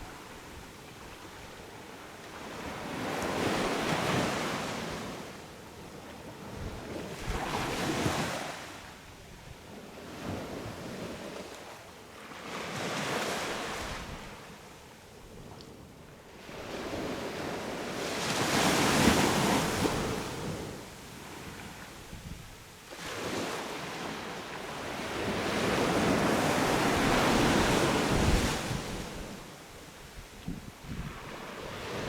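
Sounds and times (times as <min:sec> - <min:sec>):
waves breaking on a beach: 0:00.0 - 0:32.0
wind on the microphone: 0:06.2 - 0:08.5, 0:13.6 - 0:14.6, 0:15.2 - 0:22.7, 0:24.8 - 0:32.0.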